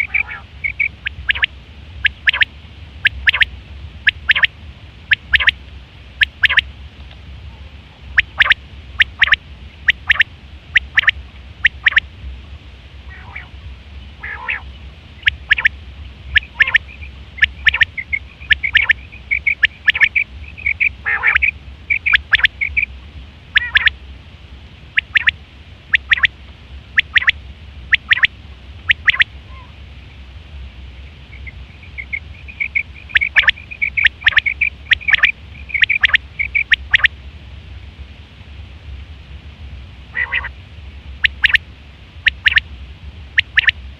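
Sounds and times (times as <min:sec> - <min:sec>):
quail calling: 0:00.0 - 0:04.5, 0:05.1 - 0:05.6, 0:06.2 - 0:06.6, 0:08.1 - 0:12.0, 0:13.1 - 0:13.6, 0:14.2 - 0:15.7, 0:16.3 - 0:22.9, 0:23.5 - 0:24.0, 0:24.9 - 0:26.3, 0:27.0 - 0:28.3, 0:28.9 - 0:29.8, 0:31.3 - 0:37.1, 0:40.1 - 0:40.6, 0:41.2 - 0:41.6, 0:42.2 - 0:42.6, 0:43.4 - 0:43.7
steady low hum: 0:00.0 - 0:43.9.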